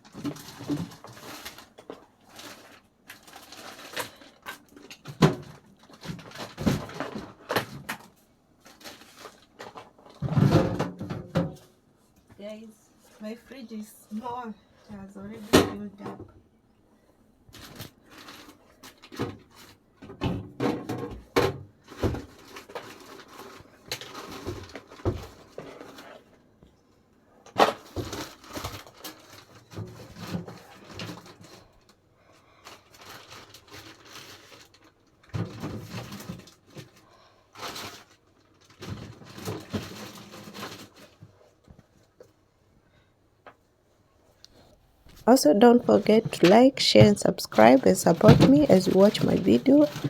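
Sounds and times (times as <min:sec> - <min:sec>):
food containers knocking and clattering: 0:04.6 - 0:08.1, 0:09.5 - 0:11.7, 0:19.1 - 0:23.4, 0:45.1 - 0:50.0.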